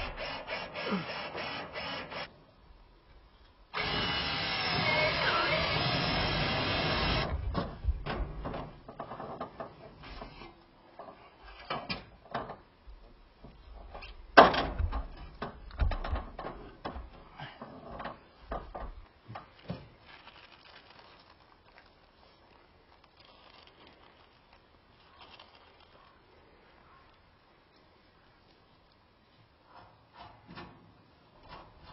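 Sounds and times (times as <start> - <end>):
power tool: 0.0 - 2.3, 3.7 - 7.3
knocks and clatter of building work: 6.6 - 20.0, 29.7 - 31.9.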